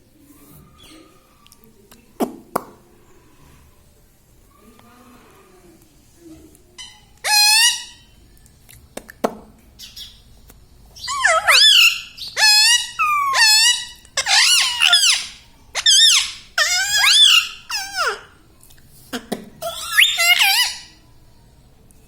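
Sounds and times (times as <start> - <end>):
parakeet calling loudly: 6.8 - 8.2, 11.0 - 18.3, 19.6 - 21.0.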